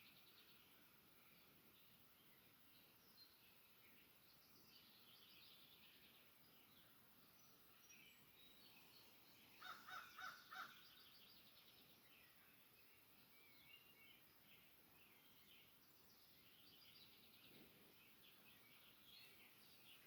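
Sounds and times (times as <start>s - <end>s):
birds chirping and trilling: 0.0s - 20.0s
short loud bird calls: 8.7s - 11.2s.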